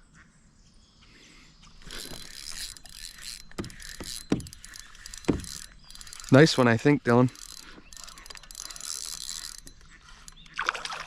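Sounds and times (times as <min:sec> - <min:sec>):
water splashing around kayak: 0:01.8 - 0:11.0.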